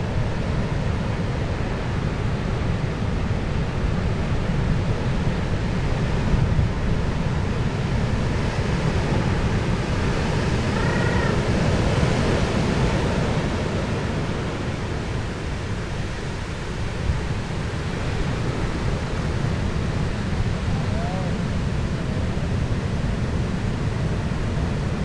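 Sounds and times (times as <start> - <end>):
rushing sea: 0.0 - 25.0
wind: 0.0 - 25.0
rising and falling high call: 10.6 - 11.4.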